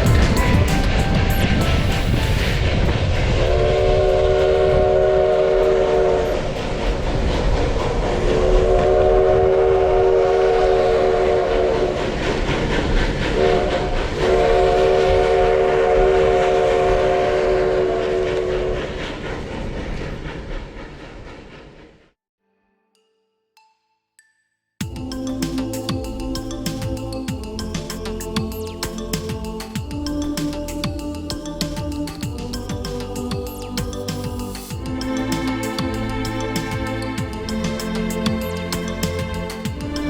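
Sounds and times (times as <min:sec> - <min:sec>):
train wheel clatter: 0:00.0 - 0:08.9, 0:10.8 - 0:15.7, 0:16.3 - 0:22.1, 0:27.8 - 0:40.0
steam locomotive chime whistle: 0:00.0 - 0:12.3, 0:13.3 - 0:18.9.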